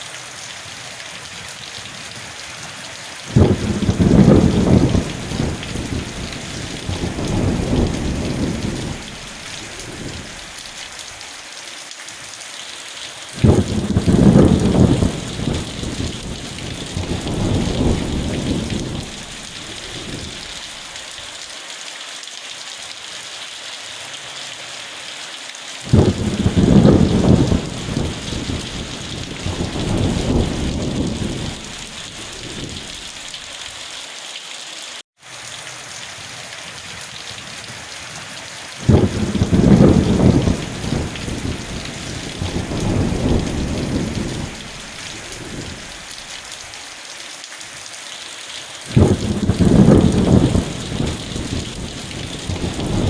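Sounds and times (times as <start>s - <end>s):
rain hissing: 0.0s - 53.0s
thunder rumbling and cracking: 3.3s - 10.7s, 13.4s - 20.8s, 25.9s - 33.4s, 38.8s - 46.3s, 48.9s - 53.0s.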